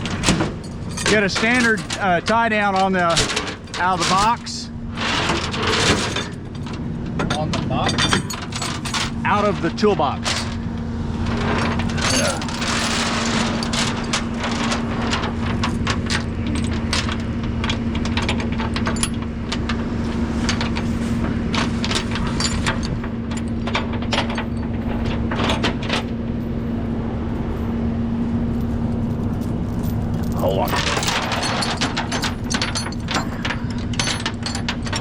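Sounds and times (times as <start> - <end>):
chains clinking and rattling: 0.0 - 20.8, 21.5 - 26.6, 28.4 - 35.0
tow truck engine humming: 0.0 - 35.0.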